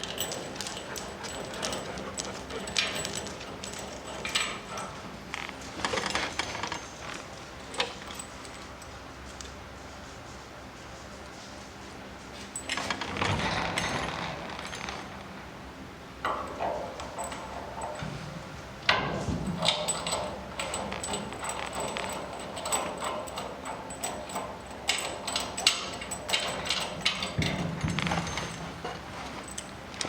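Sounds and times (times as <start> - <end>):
metal tools clinking and scraping: 0.0 - 8.6, 18.9 - 30.0.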